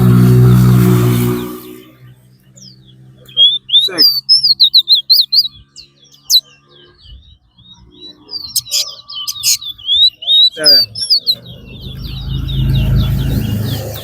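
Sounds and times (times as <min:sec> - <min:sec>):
finch singing warbling chirps: 0:00.4 - 0:14.0.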